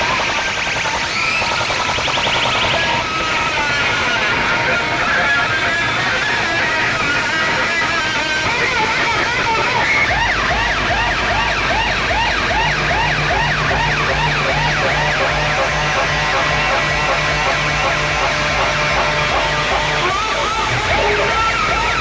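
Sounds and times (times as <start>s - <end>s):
heavy bass: 0.0s - 22.0s
loud dj music: 0.0s - 22.0s
siren-like whooping effect: 0.0s - 22.0s.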